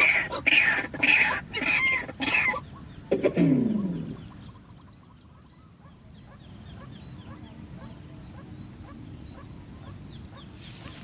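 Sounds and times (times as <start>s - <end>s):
waterhen calling: 0.0s - 4.9s.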